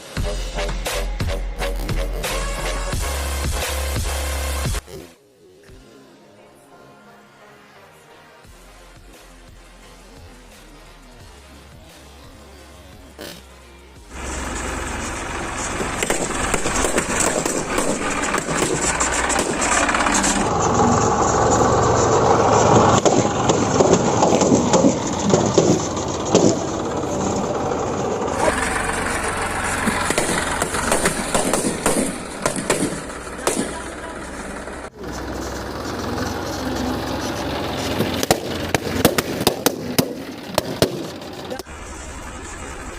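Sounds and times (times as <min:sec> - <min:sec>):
tractor engine running: 0:14.0 - 0:42.9
balloons bursting: 0:15.6 - 0:20.5, 0:29.8 - 0:34.0.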